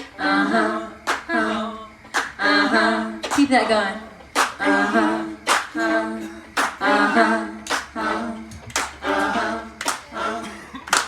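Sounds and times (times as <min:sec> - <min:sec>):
a cappella singing voices: 0:00.0 - 0:11.0
hand claps: 0:01.1 - 0:01.3, 0:02.1 - 0:02.4, 0:03.2 - 0:03.5, 0:04.4 - 0:04.6, 0:05.4 - 0:05.8, 0:06.6 - 0:06.8, 0:07.6 - 0:10.1, 0:10.8 - 0:11.0.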